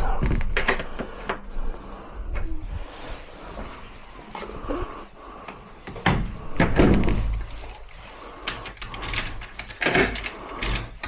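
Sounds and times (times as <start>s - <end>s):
door knocks and thuds: 6.0s - 7.4s.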